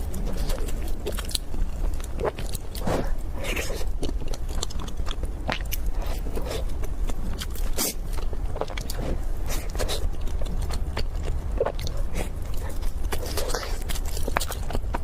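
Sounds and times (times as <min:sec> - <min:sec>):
chewing soft bread: 0:00.0 - 0:15.0.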